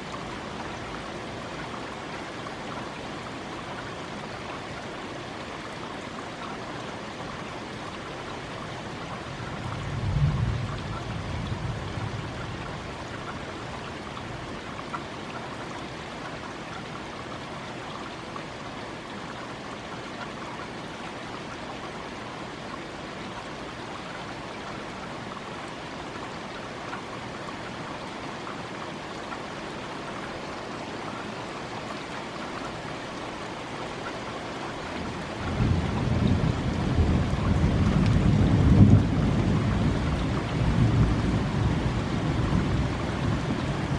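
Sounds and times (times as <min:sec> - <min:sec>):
steady rain: 0:00.0 - 0:43.9
low thunder rumble: 0:09.6 - 0:12.9, 0:35.4 - 0:43.9.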